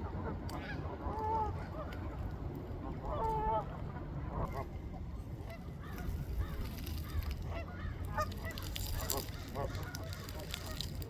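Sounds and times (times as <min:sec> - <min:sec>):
flock of ducks calling: 0:05.5 - 0:11.0.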